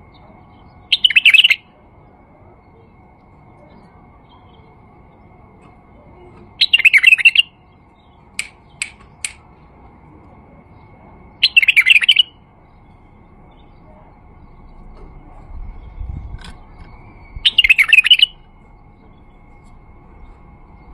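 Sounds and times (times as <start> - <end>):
bird singing warbled phrases: 0.0 - 9.6, 10.5 - 20.9
bird sharp notes: 11.4 - 12.4, 16.4 - 19.1.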